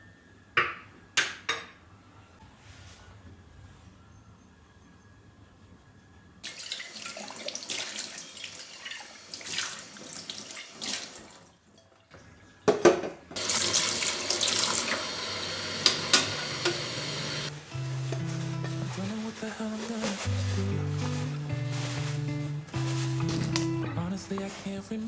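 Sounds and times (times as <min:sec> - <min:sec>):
tap running into sink: 0:12.7 - 0:17.5.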